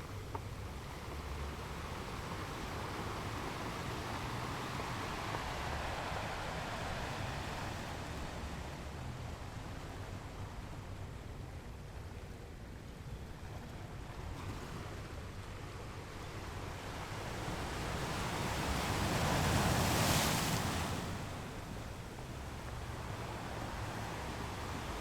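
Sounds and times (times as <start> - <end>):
surf washing on rocks: 1.1 - 10.3, 16.5 - 25.0.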